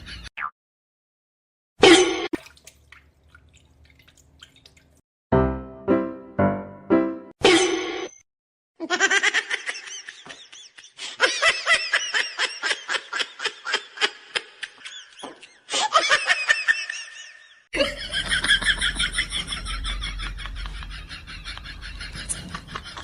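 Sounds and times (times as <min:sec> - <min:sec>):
person laughing hard: 0:08.8 - 0:23.0.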